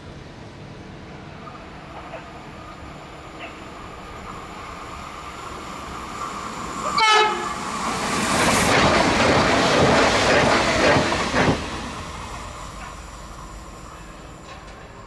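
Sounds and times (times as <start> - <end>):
train passing at speed: 0.0 - 15.0
train horn blast: 7.0 - 7.6.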